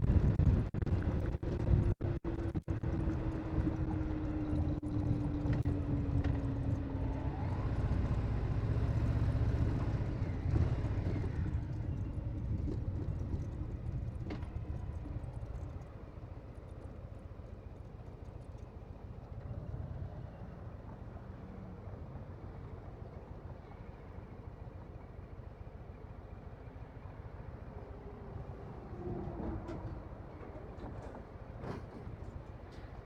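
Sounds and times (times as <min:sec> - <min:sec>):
motorcycle engine riding: 0:00.0 - 0:16.9.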